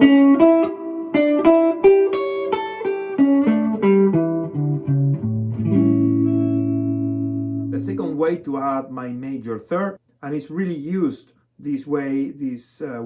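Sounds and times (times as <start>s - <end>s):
guitar blues lick: 0.0s - 8.8s.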